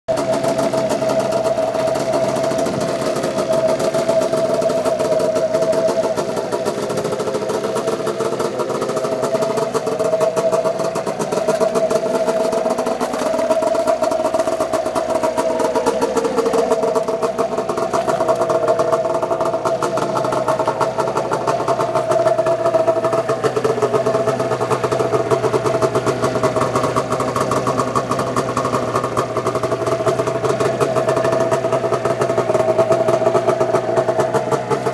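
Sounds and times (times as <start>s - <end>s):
snowmobile engine running: 0.1s - 34.9s.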